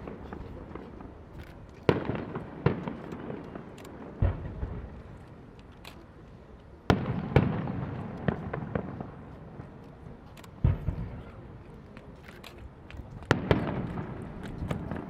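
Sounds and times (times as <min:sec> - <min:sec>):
fireworks bursting with bangs: 0:00.0 - 0:05.5, 0:06.7 - 0:15.0
firework pops and crackle: 0:00.0 - 0:15.0.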